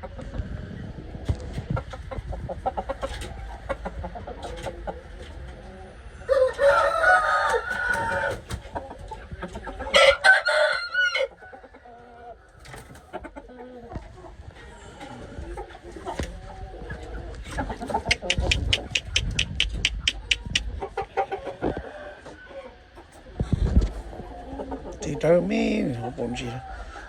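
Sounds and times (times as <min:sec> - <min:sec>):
chicken clucking: 0:00.0 - 0:27.0
roosters crowing: 0:06.1 - 0:08.8, 0:09.8 - 0:13.2, 0:16.8 - 0:27.0.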